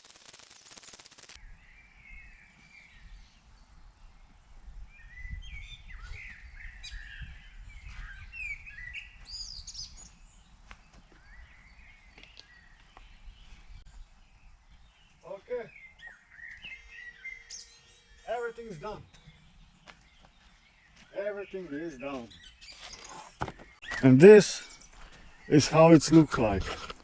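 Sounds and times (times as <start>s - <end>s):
steady hiss: 0.0s - 1.4s
small birds chirping: 0.0s - 27.0s.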